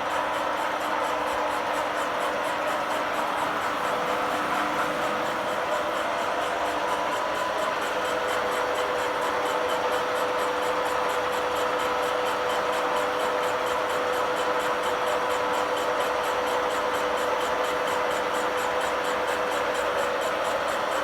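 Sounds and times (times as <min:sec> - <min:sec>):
constant machine whine: 0:00.0 - 0:12.2.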